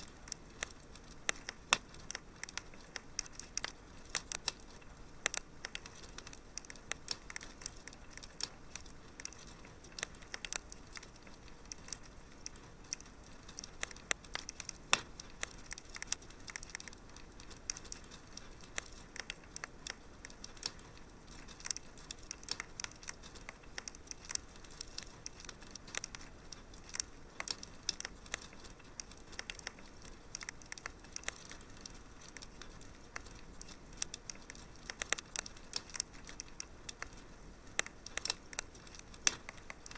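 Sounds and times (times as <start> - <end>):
faint steady hiss: 0.0 - 39.9
wood fire crackling and popping: 0.0 - 39.9.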